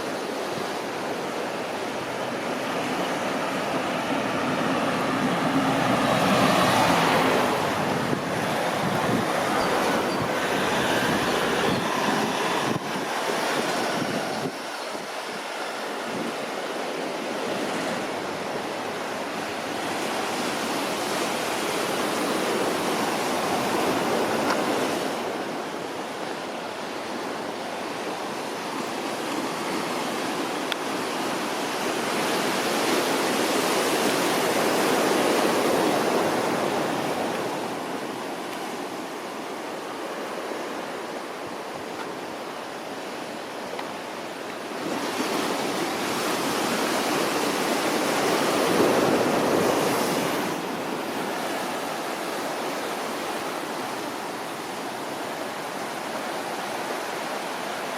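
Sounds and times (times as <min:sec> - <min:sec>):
ocean surf washing on shore: 0:00.0 - 0:57.9.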